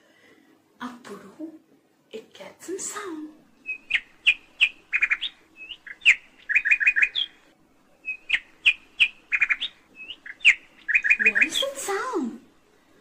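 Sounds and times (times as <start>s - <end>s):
bird chirping: 3.6s - 12.0s.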